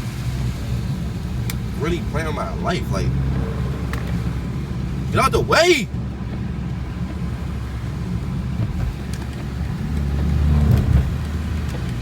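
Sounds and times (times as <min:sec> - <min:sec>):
tyres on slushy road: 0:00.0 - 0:12.0
car engine drone: 0:00.9 - 0:08.6.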